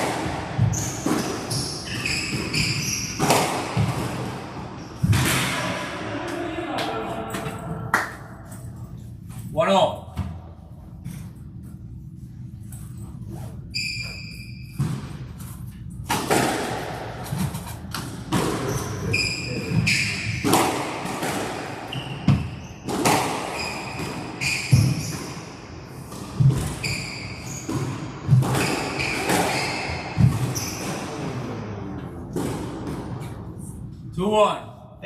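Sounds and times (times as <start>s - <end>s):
squash ball hitting rackets and walls: 0.0s - 8.5s, 13.6s - 33.9s
sneakers squeaking on court floor: 0.5s - 5.2s, 13.4s - 15.4s, 18.3s - 20.6s, 21.8s - 31.3s.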